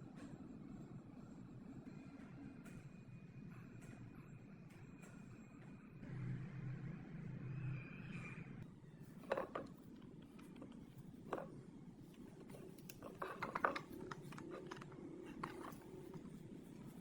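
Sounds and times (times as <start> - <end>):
clicks and knocks of handling: 9.2 - 17.0.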